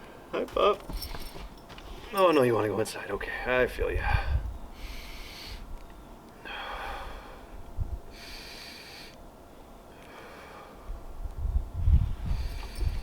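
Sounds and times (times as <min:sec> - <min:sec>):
person breathing heavily: 0:04.0 - 0:05.7, 0:06.4 - 0:09.2, 0:09.9 - 0:11.0.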